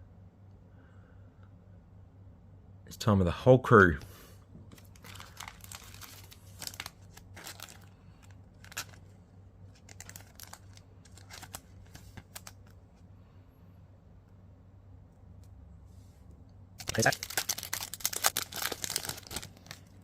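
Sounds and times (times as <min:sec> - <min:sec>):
cards rustling and clicking: 0:04.7 - 0:09.1, 0:09.7 - 0:12.8, 0:16.8 - 0:20.0
foil pack crinkling and tearing: 0:04.7 - 0:09.1, 0:09.7 - 0:12.8, 0:16.8 - 0:20.0.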